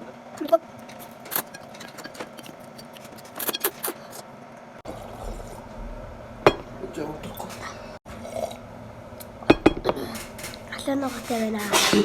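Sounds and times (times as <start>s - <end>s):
utensils clinking against dish: 0.8s - 4.2s, 9.5s - 12.0s.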